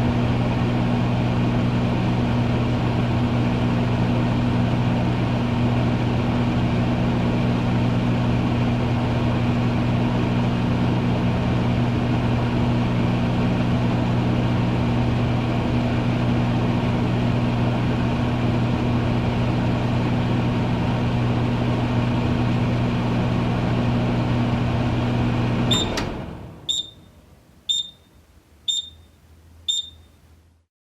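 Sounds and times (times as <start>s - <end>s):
microwave oven humming: 0.0s - 30.5s
short high beeps: 25.7s - 26.0s, 26.7s - 30.2s.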